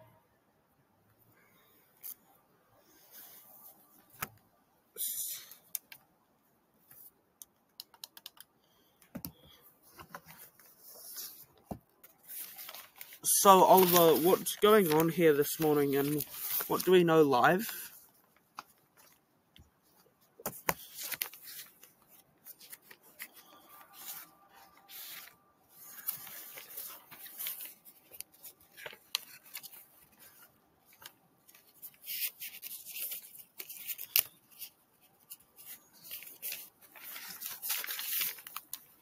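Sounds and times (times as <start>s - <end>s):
rustling and handling noises: 6.8s - 39.0s.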